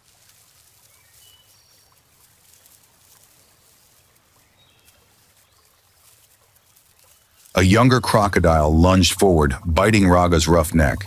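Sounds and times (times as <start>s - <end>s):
soft wash of river water: 0.0s - 7.6s.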